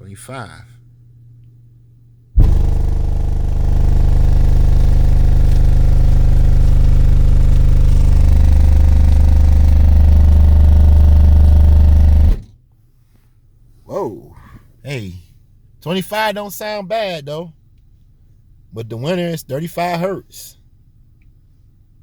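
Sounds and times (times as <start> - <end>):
deep test tone drone: 2.4 - 12.4.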